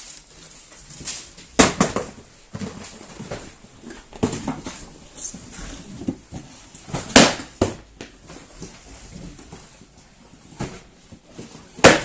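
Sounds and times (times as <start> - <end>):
box bouncing knock: 1.6 - 4.9.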